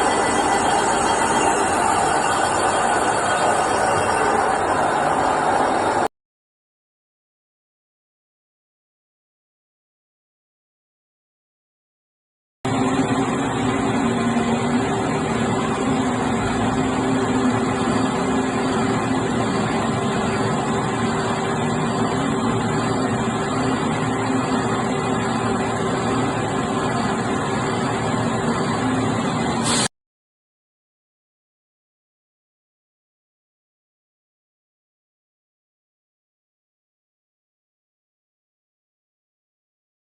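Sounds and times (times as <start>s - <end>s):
metal lathe humming: 0.0s - 6.0s.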